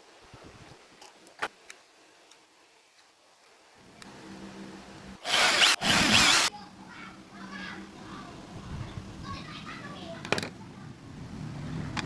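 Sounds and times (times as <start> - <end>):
harsh whirr of tool cutting: 5.2 - 6.5
power tool motor humming: 5.2 - 6.5.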